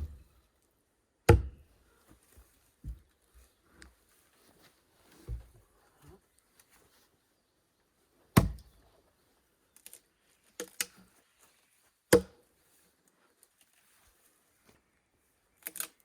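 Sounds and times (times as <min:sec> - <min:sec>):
sharp hard knocks or chops: 0:01.3 - 0:01.6, 0:08.4 - 0:08.6, 0:12.1 - 0:12.3.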